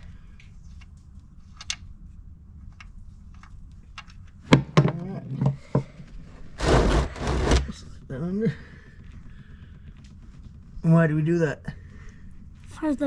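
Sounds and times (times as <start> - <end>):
steady low rumble: 6.4 - 12.8.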